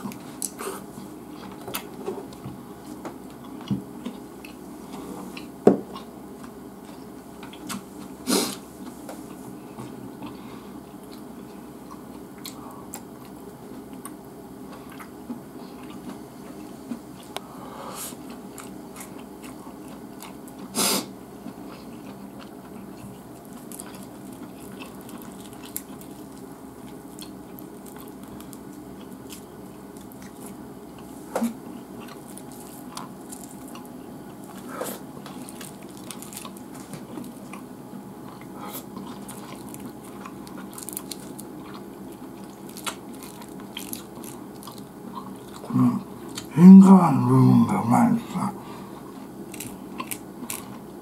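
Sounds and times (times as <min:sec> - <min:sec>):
chewing food: 0:00.0 - 0:08.2, 0:09.1 - 0:17.5, 0:18.1 - 0:20.7, 0:21.4 - 0:46.5, 0:48.9 - 0:51.0
steady low hum: 0:00.0 - 0:51.0.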